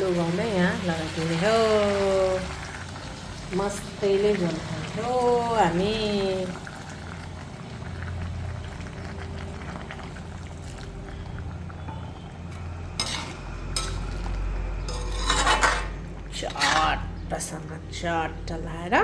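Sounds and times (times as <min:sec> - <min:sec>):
utensil scraping cooking pot: 0:11.8 - 0:17.2.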